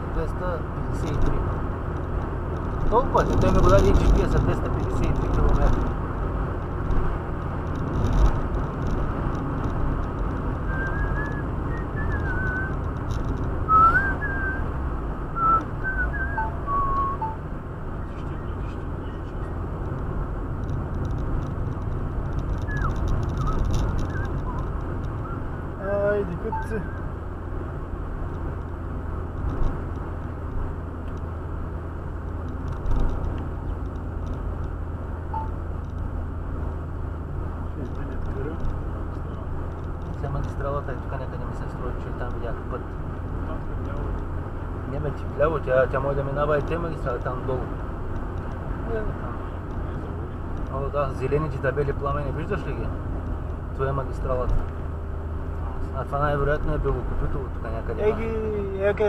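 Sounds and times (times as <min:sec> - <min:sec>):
car road and engine noise: 0:00.0 - 0:59.0
person whistling a tune: 0:10.7 - 0:12.7, 0:13.7 - 0:14.6, 0:15.4 - 0:17.4.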